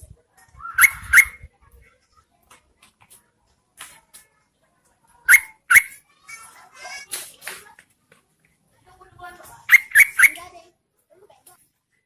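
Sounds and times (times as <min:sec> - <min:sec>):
bulbul sharp rising calls: 0:00.6 - 0:01.4, 0:05.3 - 0:06.0, 0:09.7 - 0:10.4.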